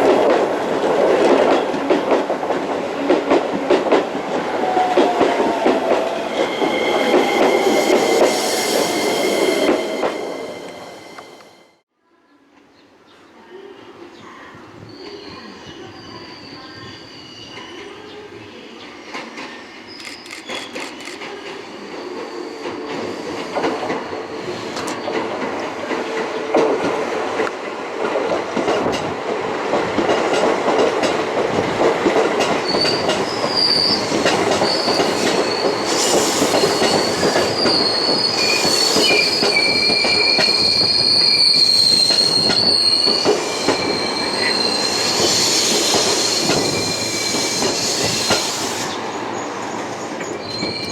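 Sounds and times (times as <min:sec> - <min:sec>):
train rumbling through station: 0:00.0 - 0:11.8, 0:13.0 - 0:50.9
steel wheels squealing on rails: 0:04.6 - 0:11.8, 0:14.8 - 0:18.3, 0:19.0 - 0:25.2, 0:32.6 - 0:50.9.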